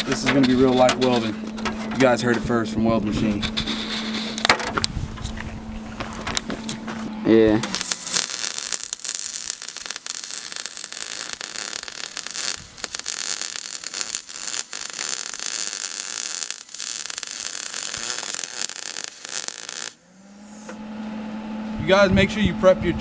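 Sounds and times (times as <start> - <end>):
welder arc crackling and hissing: 7.0 - 20.7.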